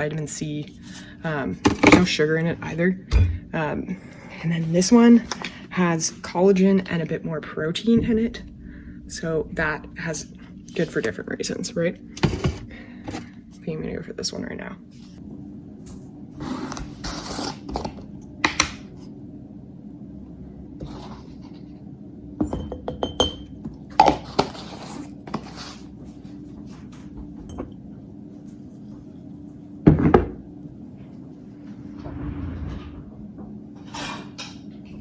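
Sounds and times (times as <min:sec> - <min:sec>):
steady low hum: 0:00.0 - 0:24.0, 0:25.0 - 0:35.0
glassware and dishes clinking: 0:22.4 - 0:23.6.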